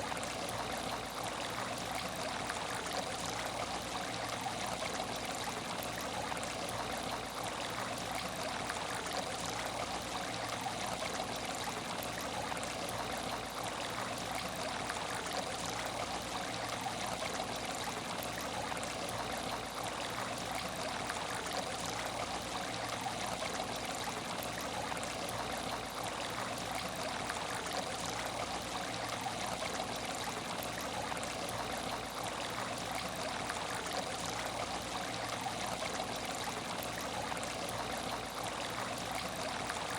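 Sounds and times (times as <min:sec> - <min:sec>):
water trickling in aquarium: 0:00.0 - 0:39.9.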